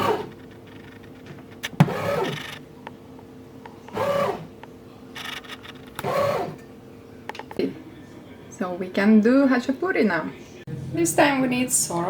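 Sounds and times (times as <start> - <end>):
bread machine motor whirring: 1.6 - 2.6, 3.9 - 4.5, 5.2 - 6.6
steady low hum: 10.4 - 12.0.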